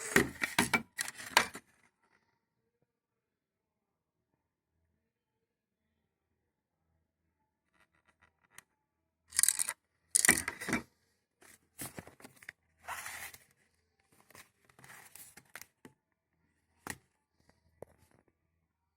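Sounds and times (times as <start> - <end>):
rustling and scraping handling noise: 0.0 - 1.7, 9.3 - 15.8.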